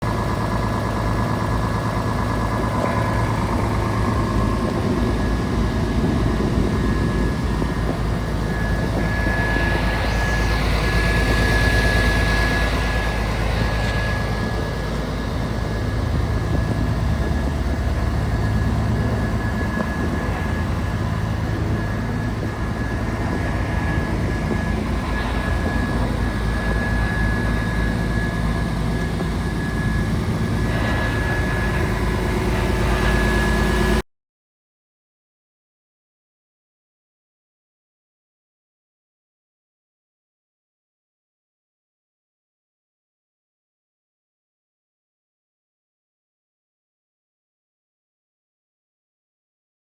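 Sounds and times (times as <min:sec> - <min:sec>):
diesel truck engine drone: 0:00.0 - 0:34.0
high whine: 0:00.1 - 0:34.0.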